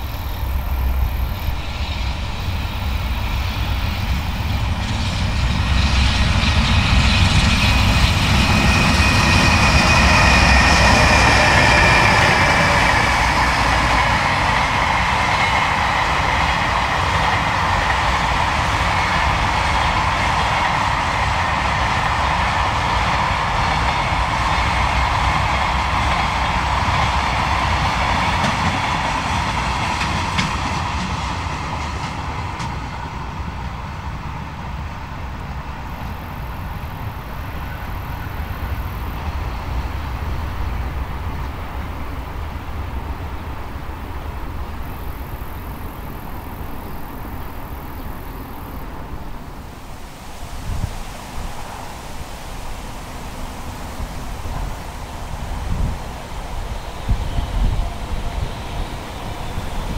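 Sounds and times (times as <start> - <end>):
faint high whine: 0.0 - 15.9
train wheels rumbling on rail: 0.0 - 59.9.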